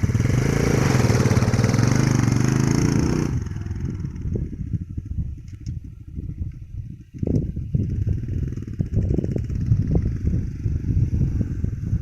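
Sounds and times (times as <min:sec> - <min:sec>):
small motorcycle engine revving and idling: 0:00.0 - 0:05.4, 0:07.4 - 0:12.0.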